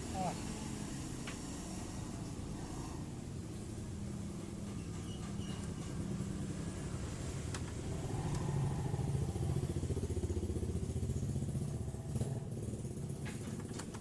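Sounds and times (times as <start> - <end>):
small engine running: 7.9 - 13.8.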